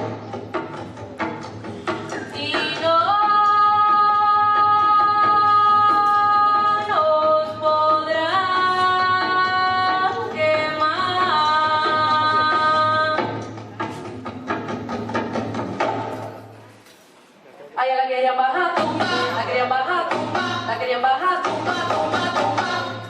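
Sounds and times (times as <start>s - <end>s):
light percussion beat: 0.0s - 6.9s, 8.7s - 16.5s.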